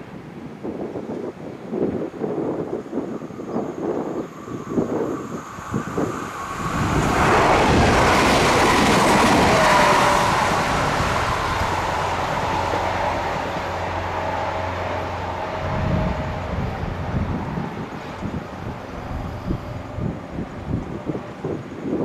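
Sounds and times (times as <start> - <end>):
train passing: 2.4 - 21.8
train whine dropping in pitch: 3.2 - 17.7.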